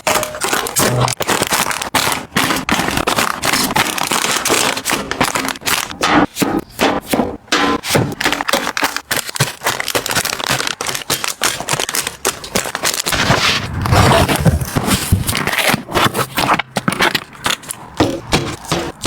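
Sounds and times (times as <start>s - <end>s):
packaging crinkling and rustling: 0.0s - 6.0s, 8.0s - 18.2s.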